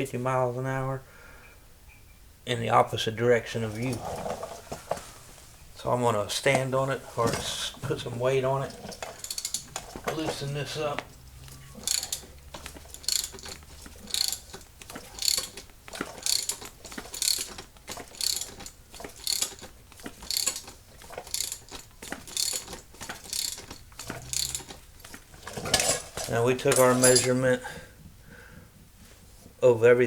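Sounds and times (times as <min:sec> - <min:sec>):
ratchet wrench clicking: 0:09.0 - 0:10.5, 0:11.2 - 0:27.3.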